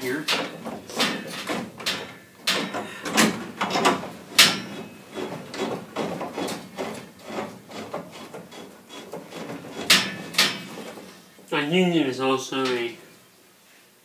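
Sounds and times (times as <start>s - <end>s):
metal clinks and knocks: 0.0s - 7.0s.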